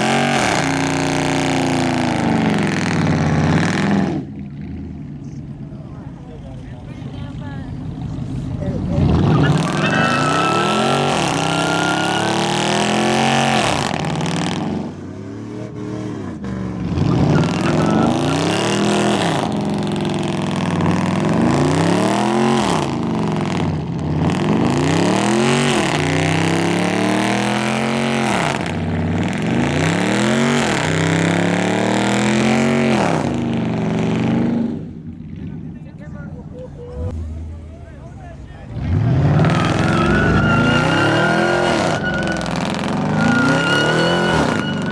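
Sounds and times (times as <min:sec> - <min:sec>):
truck engine revving: 0:00.0 - 0:35.0, 0:36.8 - 0:44.9
high whine: 0:39.5 - 0:44.9.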